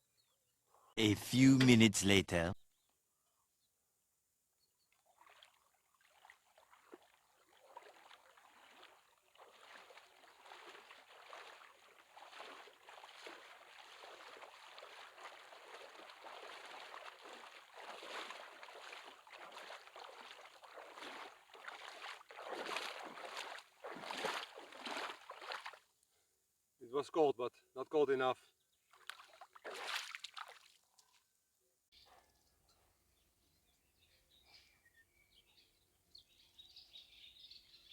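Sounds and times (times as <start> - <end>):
water splashing: 5.1 - 25.8, 29.0 - 30.8.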